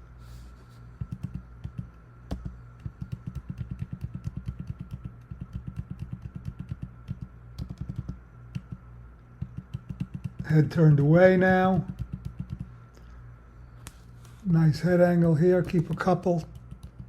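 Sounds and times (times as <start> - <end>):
low electrical hum: 0.0 - 17.0
computer keys clicking: 1.0 - 8.8, 9.4 - 10.5, 11.8 - 12.7, 15.9 - 17.0.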